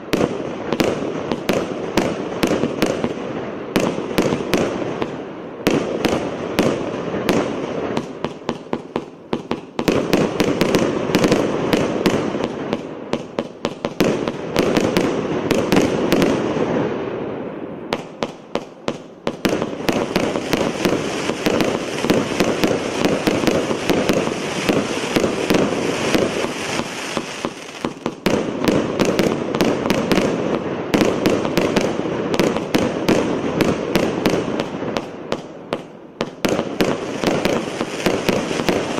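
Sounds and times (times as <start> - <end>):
firework cake firing: 17.9 - 38.9.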